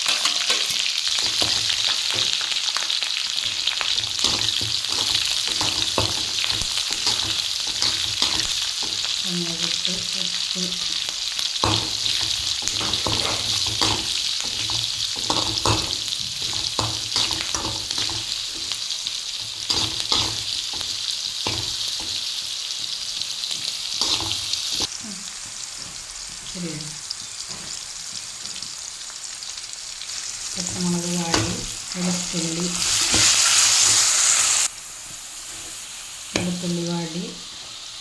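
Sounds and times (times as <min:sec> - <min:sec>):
spoon scraping and knocking pan: 0:00.0 - 0:02.5, 0:03.2 - 0:09.2, 0:10.8 - 0:18.8, 0:19.4 - 0:26.0
chillies sizzling in hot oil: 0:00.0 - 0:38.0.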